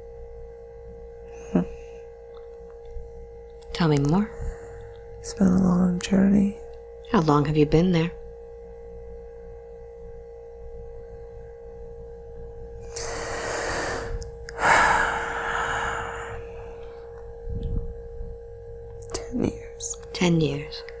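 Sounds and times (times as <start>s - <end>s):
steady humming tone: 0.0s - 21.0s
person breathing and sighing: 4.3s - 5.1s, 12.8s - 17.2s.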